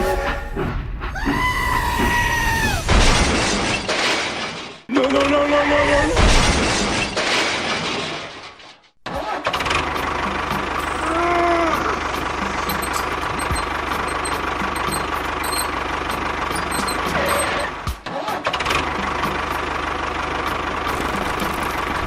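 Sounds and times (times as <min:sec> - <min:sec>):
small engine puttering: 0:09.6 - 0:17.9, 0:20.3 - 0:22.0
voice-like cry: 0:10.9 - 0:12.0.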